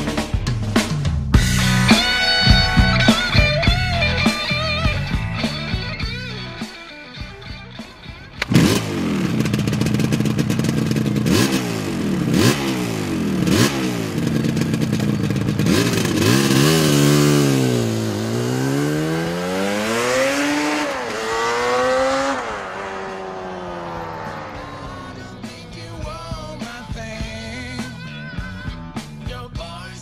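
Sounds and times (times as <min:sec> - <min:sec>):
motorcycle engine accelerating: 0:08.3 - 0:29.0.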